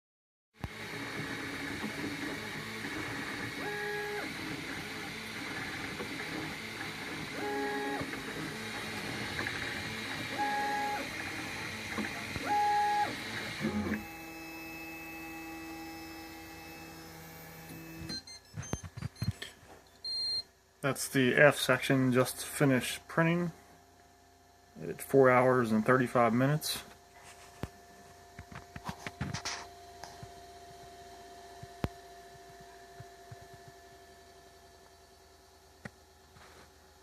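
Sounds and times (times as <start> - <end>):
printer motors and fans whirring: 0.6 - 37.0
fan hum: 20.7 - 37.0.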